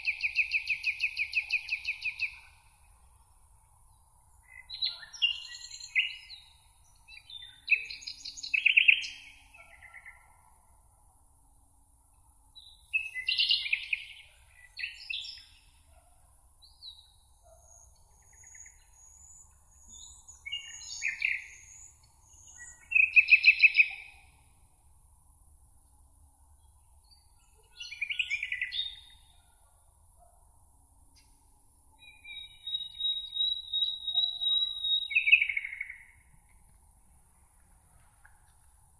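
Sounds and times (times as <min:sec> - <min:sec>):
songbirds warbling: 0:16.9 - 0:24.3, 0:32.0 - 0:36.2.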